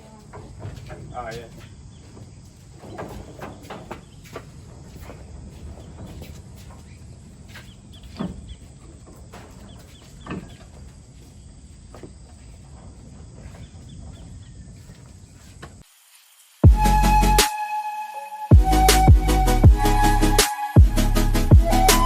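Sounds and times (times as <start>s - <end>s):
music: 16.6s - 22.0s.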